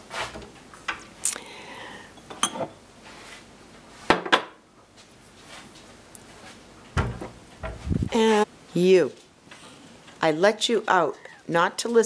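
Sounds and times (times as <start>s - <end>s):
cups and cutlery clinking: 2.2s - 2.8s.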